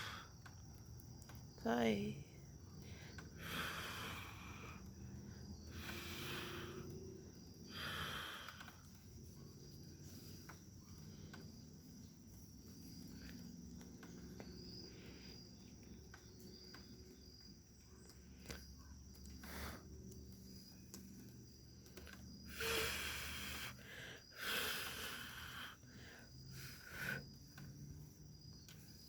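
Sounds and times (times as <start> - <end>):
crickets chirring: 0.0 - 29.0
small clicks: 0.4 - 1.6, 8.4 - 9.0, 18.0 - 22.3.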